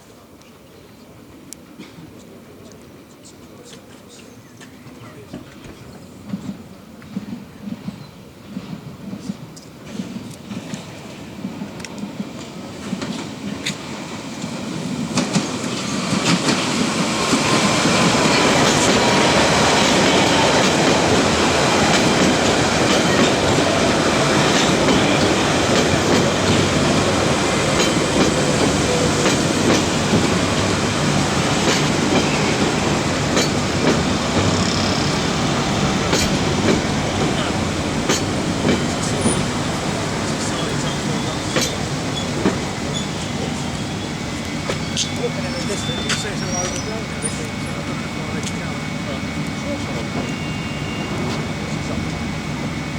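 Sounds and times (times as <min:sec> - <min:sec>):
train arriving at a platform: 0:00.0 - 0:52.9
wheels clicking over rail joints: 0:15.1 - 0:43.4.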